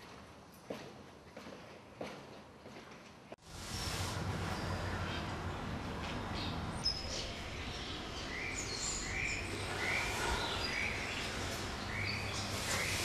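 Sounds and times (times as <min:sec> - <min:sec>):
birds chirping: 0:04.4 - 0:13.0.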